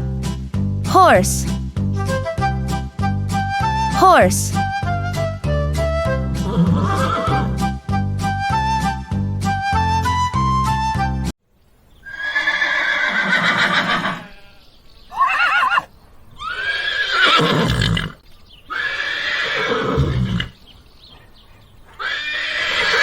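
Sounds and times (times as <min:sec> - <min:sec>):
horse neighing: 0:06.4 - 0:07.6, 0:12.1 - 0:20.6, 0:22.0 - 0:23.0.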